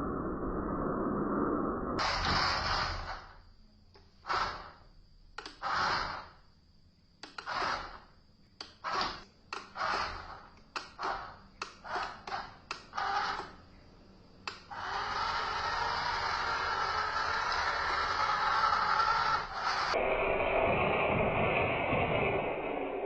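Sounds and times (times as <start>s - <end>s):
small electric motor whirring: 14.7s - 20.0s.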